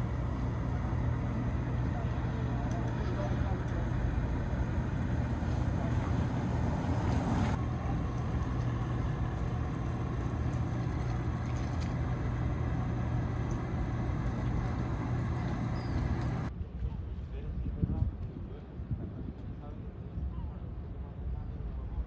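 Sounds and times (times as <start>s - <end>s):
boat engines humming: 0.0s - 16.5s
broad rushing noise: 0.0s - 16.5s.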